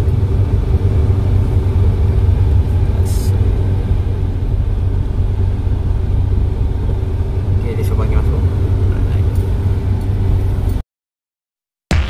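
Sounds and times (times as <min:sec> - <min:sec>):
car engine low rumble: 0:00.0 - 0:10.8.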